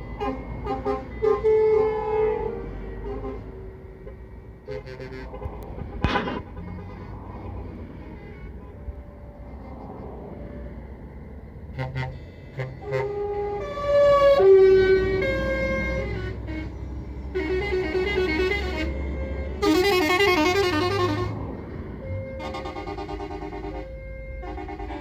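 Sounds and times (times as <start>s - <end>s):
diesel engines rumbling: 0.0s - 25.0s
truck horn toots: 0.1s - 9.1s, 11.7s - 25.0s
musical horn playing a tune: 11.8s - 21.5s, 22.2s - 25.0s.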